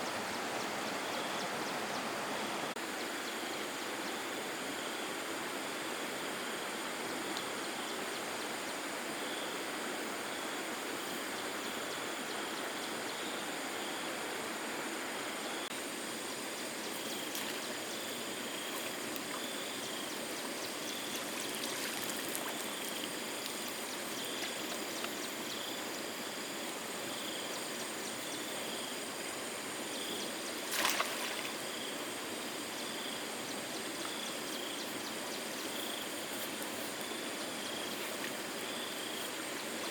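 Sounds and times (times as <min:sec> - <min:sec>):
flowing water rushing: 0:13.5 - 0:39.9.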